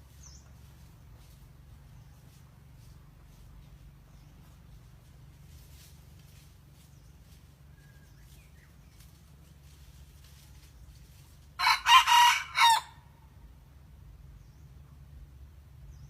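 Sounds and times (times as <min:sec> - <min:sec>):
rooster crowing: 0:11.6 - 0:13.1.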